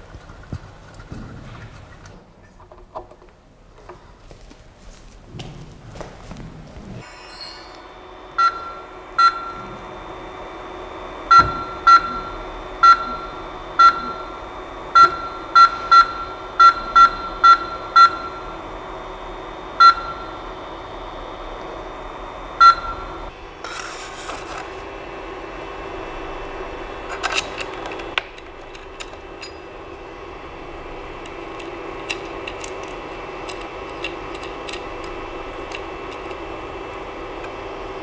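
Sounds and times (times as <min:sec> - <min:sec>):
machine whining hum: 0:00.0 - 0:38.0
short electronic beeps: 0:07.0 - 0:09.7, 0:11.3 - 0:14.4
rustling noise: 0:23.6 - 0:24.9.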